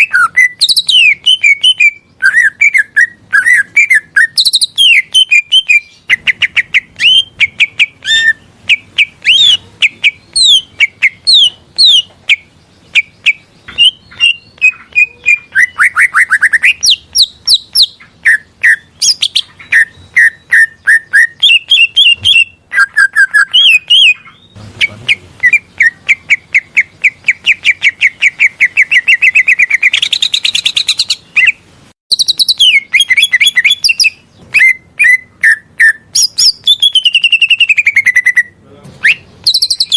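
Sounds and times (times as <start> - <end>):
bird singing chirps and whistles: 0.0 - 39.9.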